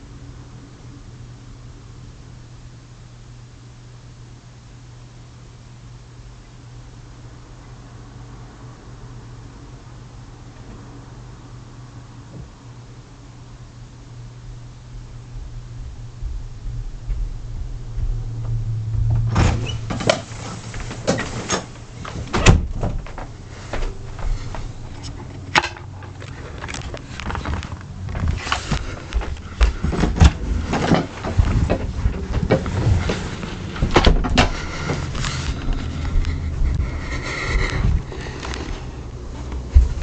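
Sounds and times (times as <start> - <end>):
low steady hum: 0.0 - 40.0
knocks and clunks: 27.4 - 35.8.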